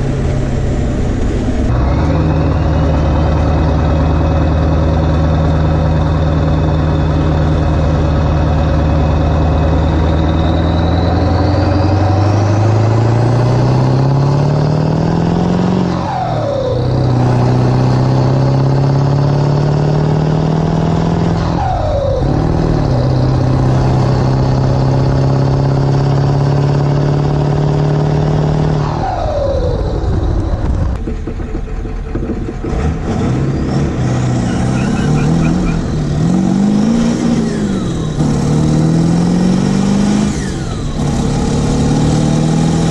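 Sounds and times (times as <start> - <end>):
diesel engine accelerating: 0.0 - 42.9
turbo whistle: 34.5 - 35.9.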